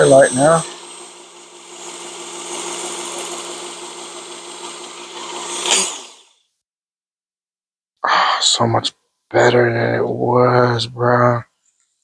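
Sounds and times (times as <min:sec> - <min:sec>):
sharpener motor humming: 0:00.0 - 0:06.2
abrasive belt hissing: 0:00.0 - 0:06.4.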